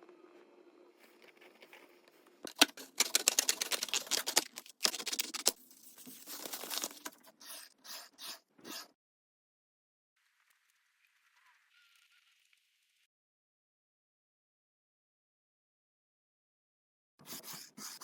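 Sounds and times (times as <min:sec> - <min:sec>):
stiff paper crackling: 0:02.5 - 0:07.3
paper scrapes: 0:02.8 - 0:08.9.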